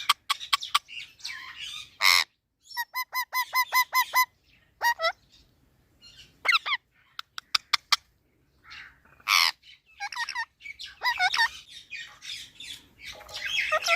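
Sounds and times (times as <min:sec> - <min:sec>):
parrot harsh squawk: 0:00.0 - 0:05.2, 0:06.4 - 0:06.8, 0:08.7 - 0:11.5, 0:13.4 - 0:13.9
parrot warbling calls: 0:00.0 - 0:05.2, 0:06.4 - 0:08.0, 0:08.6 - 0:11.6, 0:13.3 - 0:13.9.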